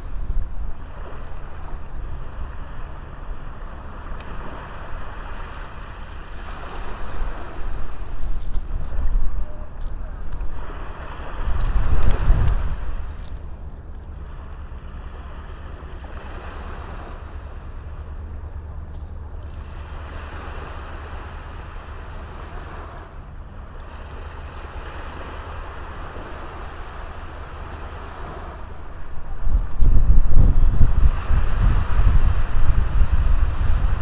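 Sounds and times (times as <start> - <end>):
wind gust buffeting microphone: 0.0 - 17.0, 27.0 - 34.0
small waves washing onto beach: 0.0 - 34.0
wind rumble on microphone: 0.0 - 34.0.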